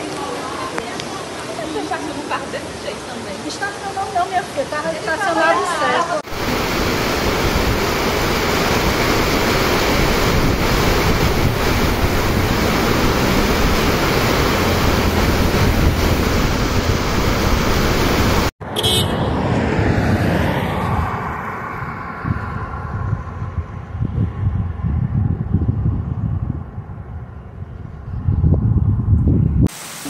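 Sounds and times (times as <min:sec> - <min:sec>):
wind gusting on microphone: 0:03.6 - 0:29.7
heavy rain pouring on street: 0:06.1 - 0:18.5.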